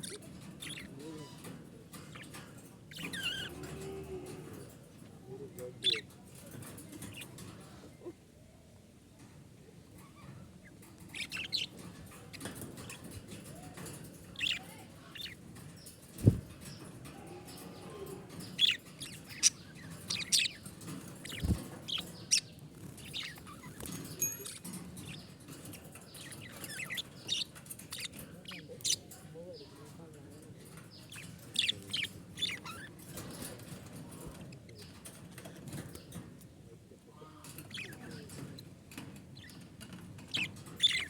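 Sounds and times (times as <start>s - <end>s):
budgerigars chirping: 0.0s - 1.5s, 11.0s - 13.0s, 14.3s - 16.8s, 18.4s - 29.8s, 30.9s - 32.9s, 40.3s - 41.0s.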